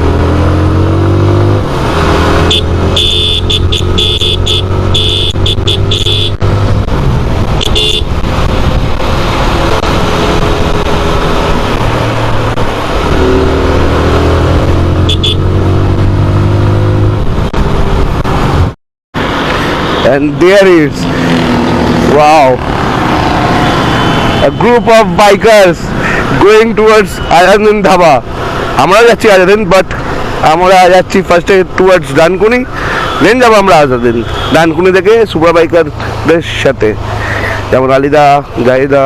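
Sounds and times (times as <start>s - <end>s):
motorcycle engine revving: 0.0s - 18.7s, 21.0s - 24.4s
short horn beeps: 2.5s - 6.4s
wind rush on microphone: 6.4s - 14.8s.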